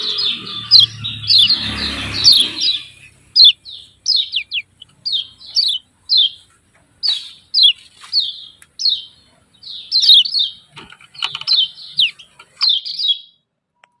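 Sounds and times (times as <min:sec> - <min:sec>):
small bird chirping: 0:00.0 - 0:14.0.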